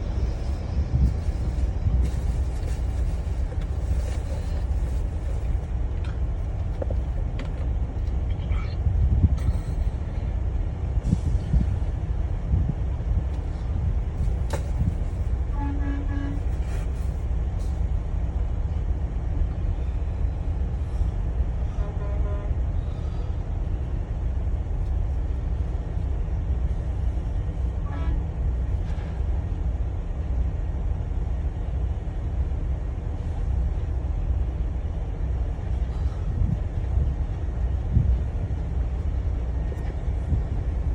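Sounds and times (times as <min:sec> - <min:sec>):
vehicle horn toots: 0:15.5 - 0:16.5, 0:21.7 - 0:22.6.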